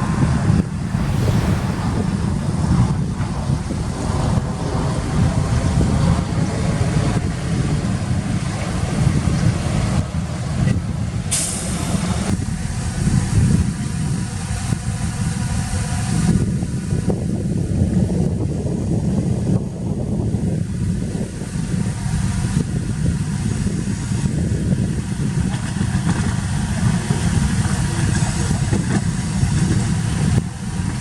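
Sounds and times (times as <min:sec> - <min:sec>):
air hiss: 0:00.8 - 0:02.5.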